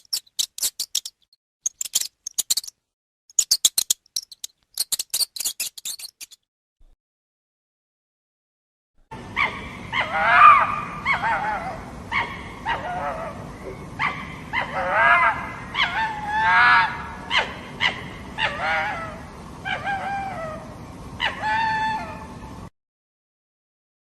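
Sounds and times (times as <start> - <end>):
dog whimpering and yipping: 19.7 - 20.6.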